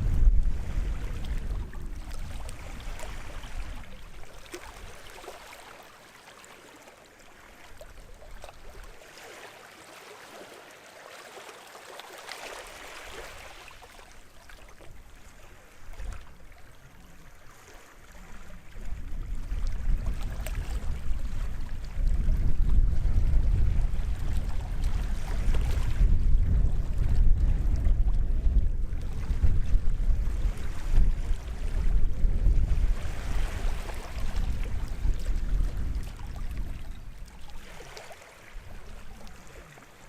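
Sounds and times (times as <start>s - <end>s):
wind rumble on microphone: 0.0s - 5.2s, 14.5s - 40.0s
small waves washing ashore: 0.0s - 40.0s.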